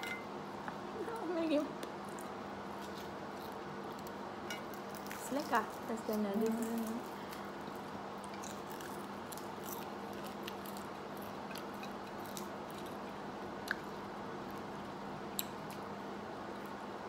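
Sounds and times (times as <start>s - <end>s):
person chewing rice: 7.0s - 15.9s.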